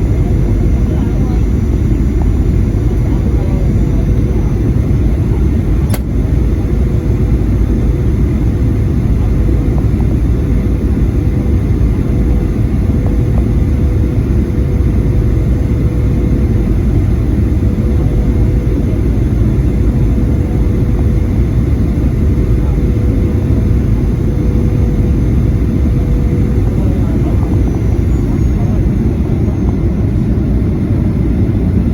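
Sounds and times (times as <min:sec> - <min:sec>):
airplane cabin rumble: 0:00.0 - 0:31.9
jet engine whine: 0:00.0 - 0:31.9
brief click: 0:05.9 - 0:06.1.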